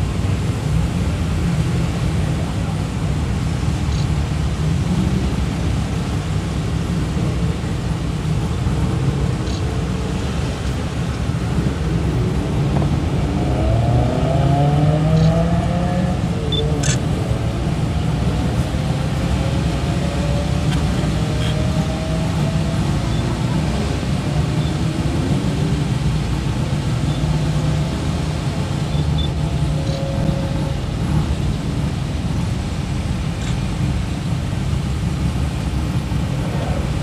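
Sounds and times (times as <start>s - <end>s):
cars driving past: 3.3s - 37.0s
car engine rising in pitch: 13.0s - 17.0s.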